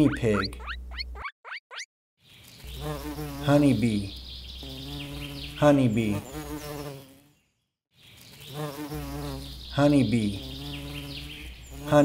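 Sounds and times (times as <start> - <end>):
honeybee buzzing in flight: 2.6 - 3.9, 4.5 - 7.4, 8.3 - 9.7, 10.3 - 12.0.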